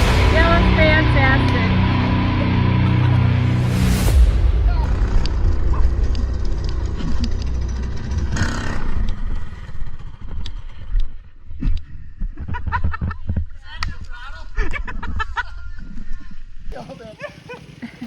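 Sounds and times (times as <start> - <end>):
mini bike engine rumbling: 5.8 - 11.3, 14.8 - 18.0.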